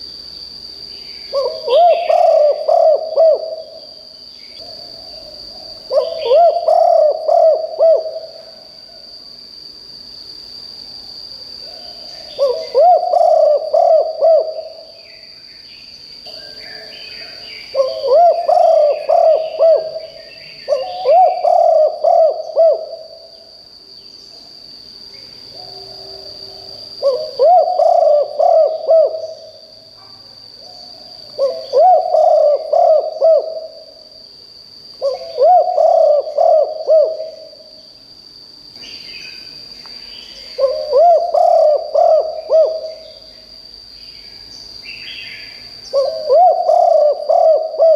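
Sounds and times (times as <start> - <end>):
steady high-pitched whine: 0.0 - 47.9
dove cooing: 1.3 - 3.8, 4.6 - 9.0, 11.7 - 15.0, 16.3 - 23.3, 25.5 - 29.6, 30.8 - 33.9, 35.0 - 37.7, 40.4 - 43.1, 45.9 - 47.9
faint bird chirps: 11.7 - 23.5.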